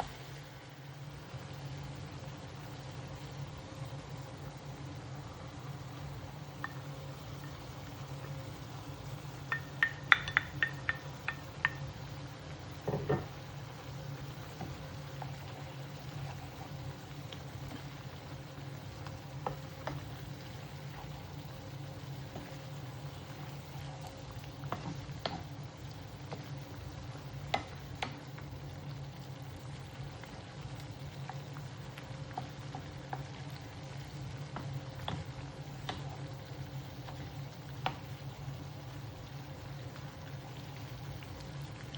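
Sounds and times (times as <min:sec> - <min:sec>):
food sizzling in a pan: 0:00.0 - 0:41.9
steady low hum: 0:00.0 - 0:41.9
utensil clinking on cookware: 0:09.5 - 0:11.8.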